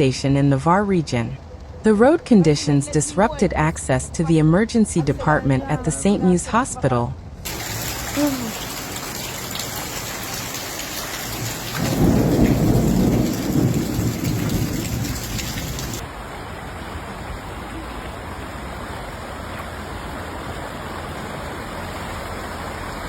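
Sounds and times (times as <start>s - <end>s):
thunder rumbling: 7.4s - 16.0s
heavy rain hissing: 7.4s - 23.0s.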